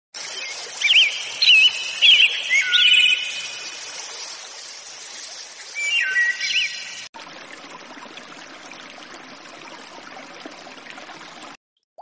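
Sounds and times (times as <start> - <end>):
birds singing: 0.3 - 3.8, 5.7 - 7.1.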